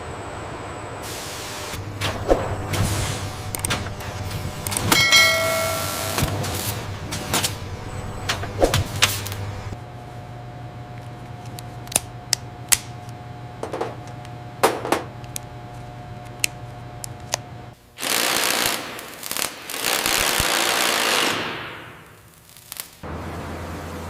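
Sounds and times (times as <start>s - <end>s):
machine hum: 0.0s - 19.2s
loud hissing blasts: 1.0s - 9.8s, 18.0s - 23.0s.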